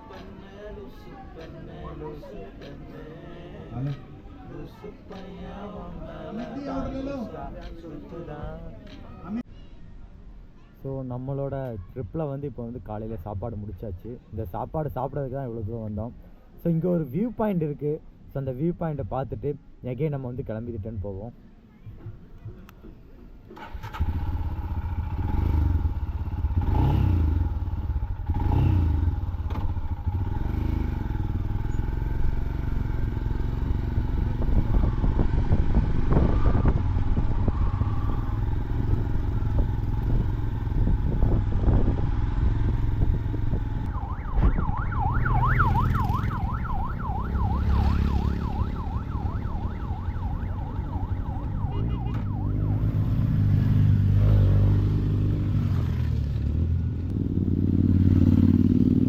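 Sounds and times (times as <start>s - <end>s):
motorcycle engine rumbling: 23.4s - 59.0s
siren warbling: 36.2s - 39.1s, 43.7s - 53.2s.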